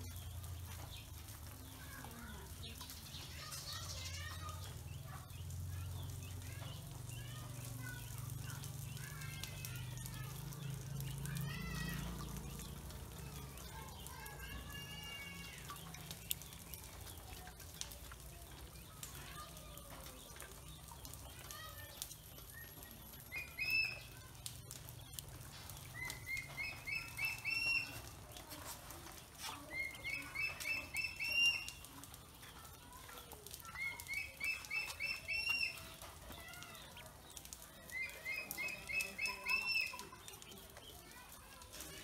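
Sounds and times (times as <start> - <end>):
bird chirping rapid notes: 20.3 - 28.2, 33.6 - 40.4.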